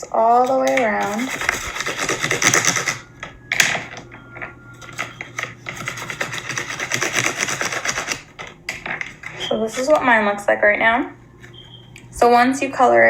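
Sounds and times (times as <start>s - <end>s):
scribbling on paper plate: 0.9s - 3.0s, 5.8s - 8.2s.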